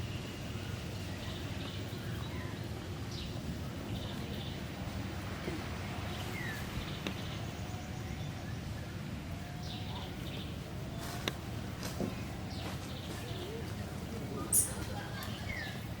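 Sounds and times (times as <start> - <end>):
steady low rumble: 0.0 - 16.0
faint animal chirping and calls: 14.4 - 15.8.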